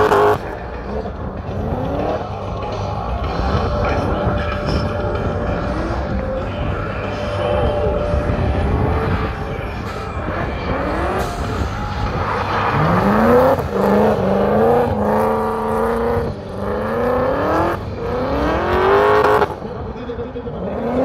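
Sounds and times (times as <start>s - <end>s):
car engine revving hard: 0.0s - 2.4s, 8.0s - 19.6s, 20.6s - 21.0s.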